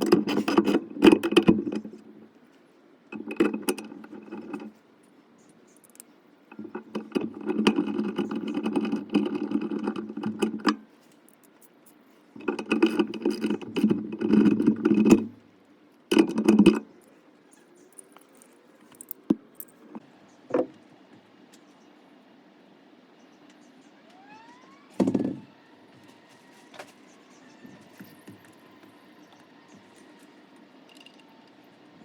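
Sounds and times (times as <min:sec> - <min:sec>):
clicks and rattles: 0:00.0 - 0:02.1, 0:03.1 - 0:04.8, 0:05.4 - 0:11.7, 0:12.4 - 0:15.4, 0:16.1 - 0:17.2, 0:17.8 - 0:20.0.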